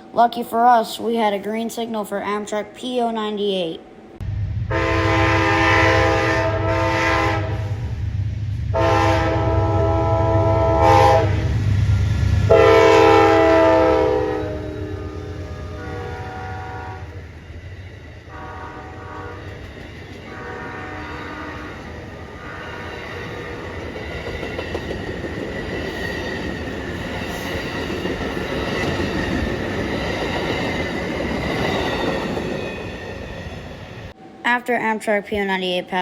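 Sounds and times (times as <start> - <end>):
train wheels rumbling on rails: 4.2 - 34.2
train horn blasts: 4.7 - 7.9, 8.7 - 11.6, 12.5 - 17.2, 18.3 - 19.5, 20.3 - 21.8.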